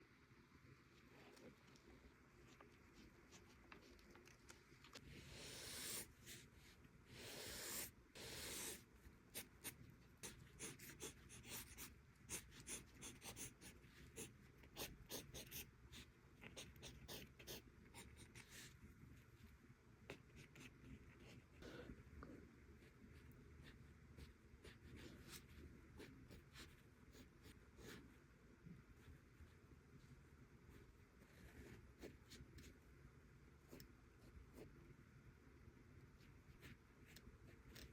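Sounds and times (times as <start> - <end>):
pencil sketching on paper: 5.2 - 18.6.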